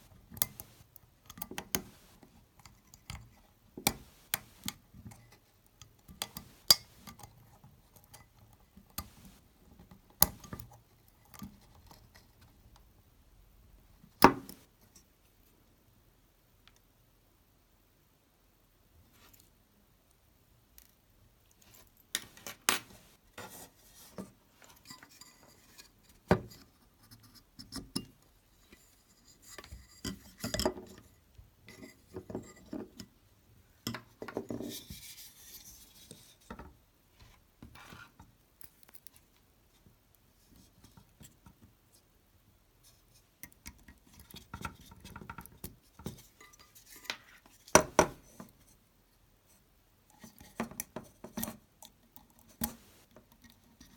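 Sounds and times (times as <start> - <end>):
small parts clicking and scraping: 38.6 - 39.4.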